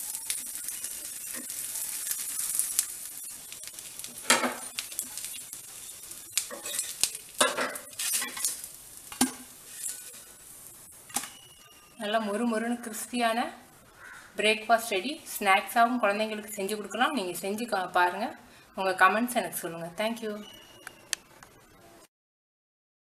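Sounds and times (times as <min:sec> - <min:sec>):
flatbread sizzling in oil: 0:00.0 - 0:18.4
wooden spatula scraping pan: 0:06.5 - 0:10.3.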